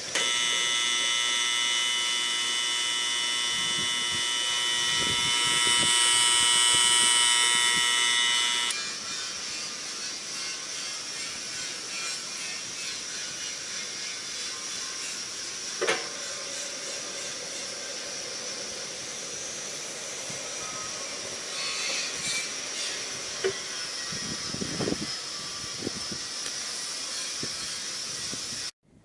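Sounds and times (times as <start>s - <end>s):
bakery mixer running: 0.0s - 10.1s
loud high buzz: 0.0s - 28.7s.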